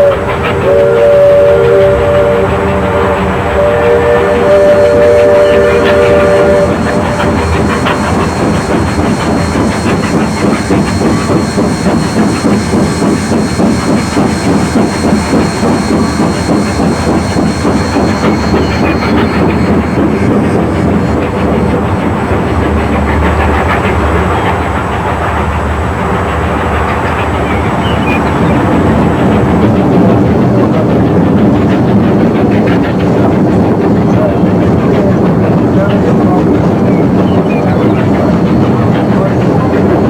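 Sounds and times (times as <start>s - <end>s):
steam whistle blast: 0.0s - 20.6s
steam hissing: 0.0s - 40.0s
steam locomotive chuffing: 0.0s - 40.0s.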